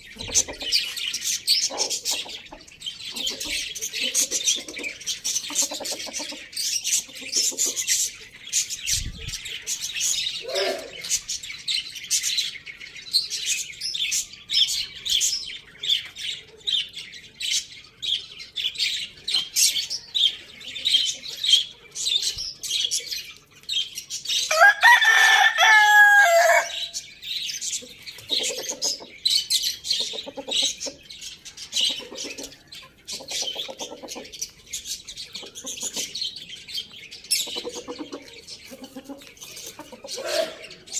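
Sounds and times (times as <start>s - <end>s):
chickens clucking: 0.0s - 40.9s
small birds chirping: 0.0s - 40.9s
rooster crowing: 24.5s - 26.9s.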